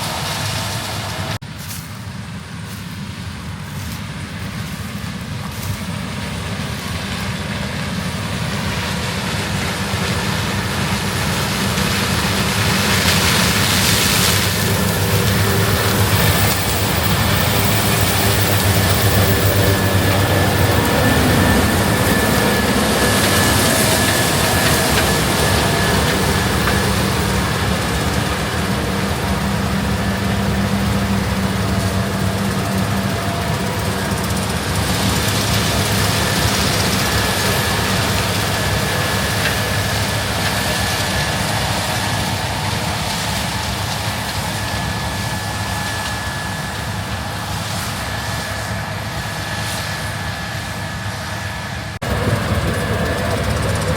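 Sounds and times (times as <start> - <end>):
diesel harvest machinery running: 0.0 - 53.9.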